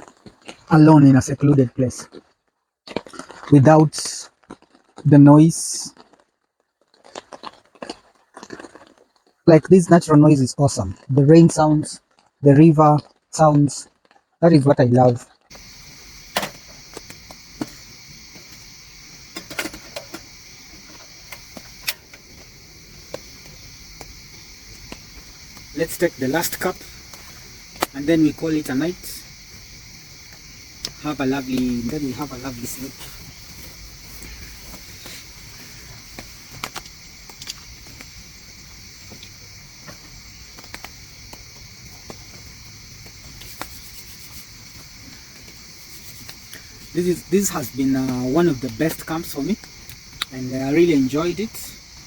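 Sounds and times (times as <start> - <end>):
river flowing: 15.5 - 39.5
crickets chirring: 15.5 - 52.0
raindrops tapping: 15.5 - 52.0.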